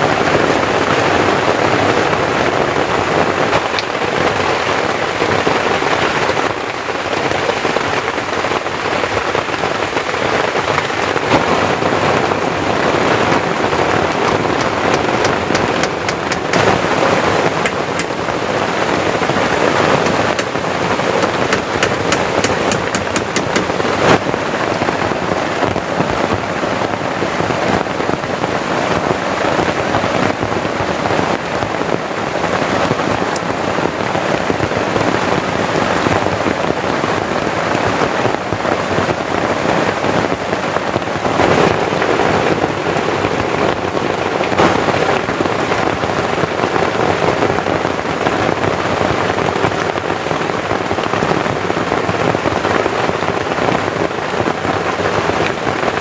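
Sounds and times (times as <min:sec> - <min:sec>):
heavy rain: 0:00.0 - 0:56.0
drops ticking on surface: 0:21.2 - 0:23.8.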